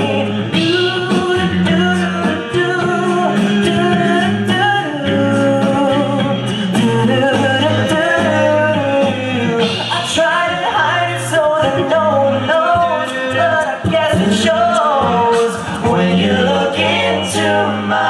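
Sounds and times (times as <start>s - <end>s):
male group singing in harmony: 0.0s - 18.0s.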